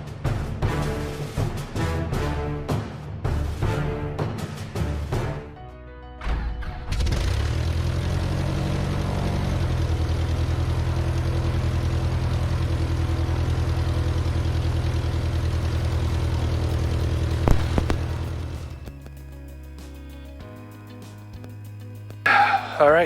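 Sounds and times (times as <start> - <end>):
propeller engine running: 7.1 - 23.0.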